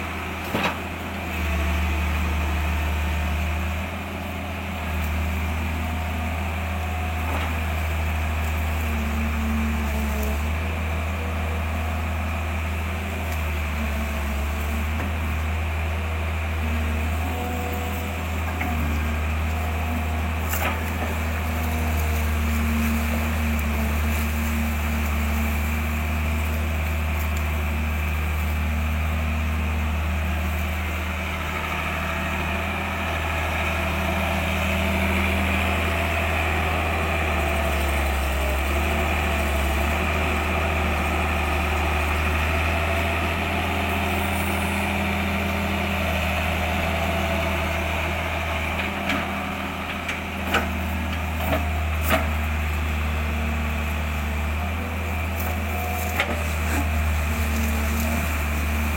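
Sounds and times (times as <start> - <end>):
engine running with low hum: 0.0 - 58.9.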